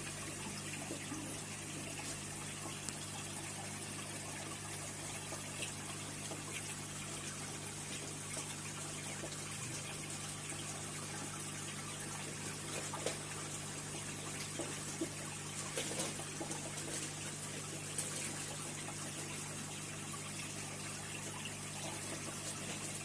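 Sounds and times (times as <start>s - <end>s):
water trickling and splashing: 0.0s - 23.0s
faint droplet ticks: 2.8s - 3.0s.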